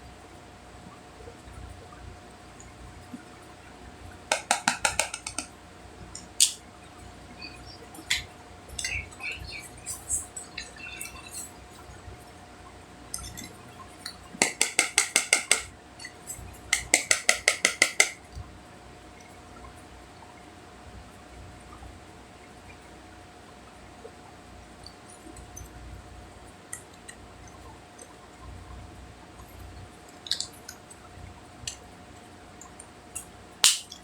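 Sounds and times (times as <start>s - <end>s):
tapping on hard plastic packaging: 4.3s - 5.5s, 14.4s - 15.7s, 16.8s - 18.2s, 33.6s - 34.0s.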